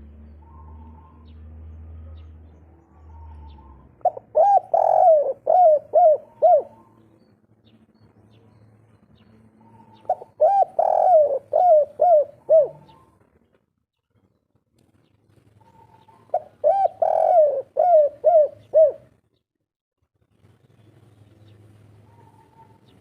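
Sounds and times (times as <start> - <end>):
dove cooing: 3.0 - 7.0, 9.6 - 13.3, 15.6 - 19.1, 22.0 - 23.0.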